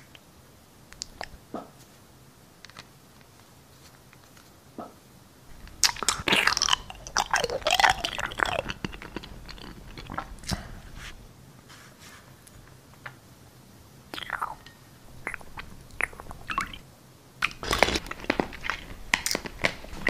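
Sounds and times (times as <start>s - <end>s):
wet crunching and chewing: 5.5s - 10.9s, 14.1s - 16.8s, 17.4s - 20.0s
mouth smacks and clicks: 5.6s - 10.7s, 14.1s - 16.8s, 17.4s - 20.0s.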